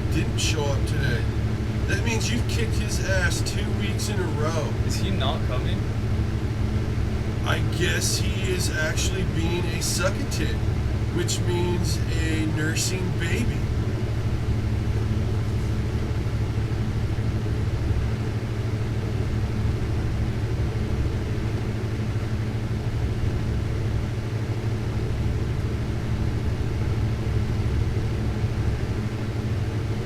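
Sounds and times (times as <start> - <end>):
torch flame rumbling: 0.0 - 17.6.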